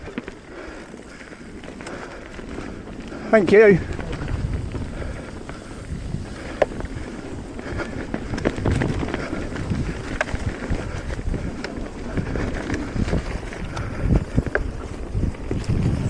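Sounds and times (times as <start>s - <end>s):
tyres rumbling on dirt: 0.0s - 16.0s
wind buffeting microphone: 0.0s - 16.0s
bike knocks and rattles: 3.5s - 16.0s.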